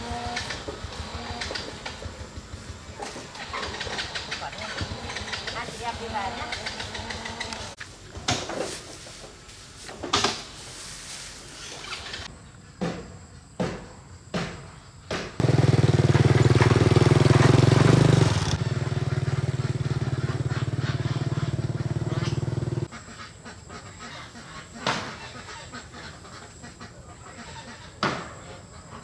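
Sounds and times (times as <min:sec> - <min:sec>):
engine starter strokes: 0:00.0 - 0:07.8, 0:11.4 - 0:12.3, 0:15.4 - 0:22.9
small petrol engine running: 0:00.0 - 0:07.8, 0:15.4 - 0:22.9.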